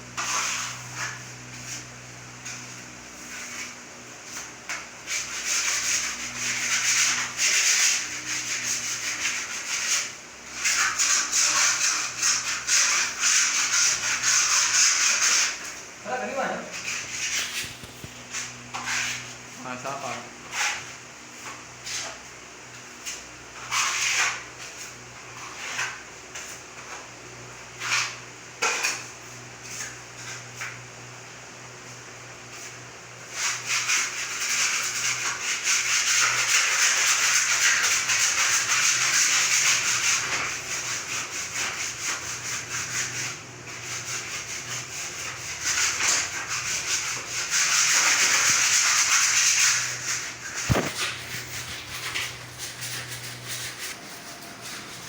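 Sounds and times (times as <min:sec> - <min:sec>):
hand sanding a plaster wall: 0:00.0 - 0:55.0.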